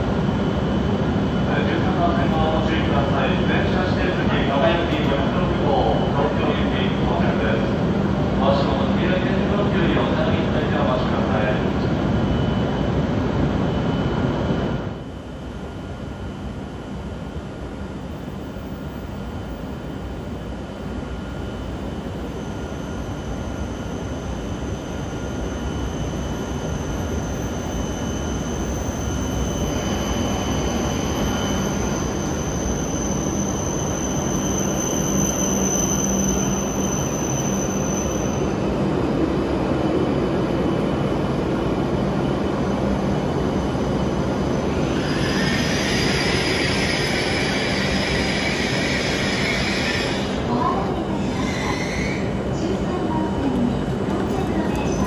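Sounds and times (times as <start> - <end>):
train pulling in and stopping: 0.0 - 55.0
thin high whine: 18.5 - 38.7.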